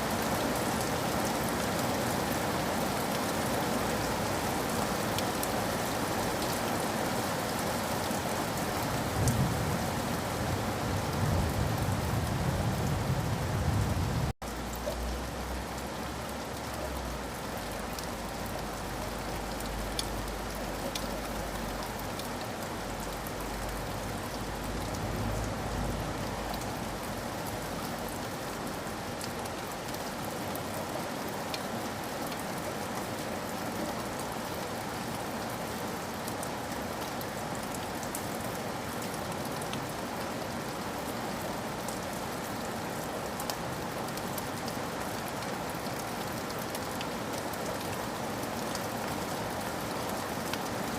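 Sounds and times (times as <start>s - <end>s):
steady rain hiss: 0.0s - 50.9s
raindrop ticks: 14.4s - 25.5s.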